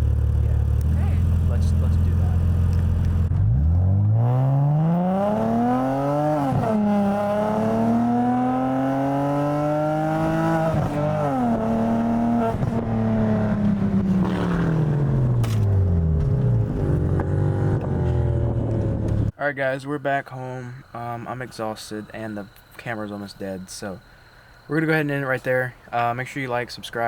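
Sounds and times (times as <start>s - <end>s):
car engine accelerating: 0.0s - 19.3s.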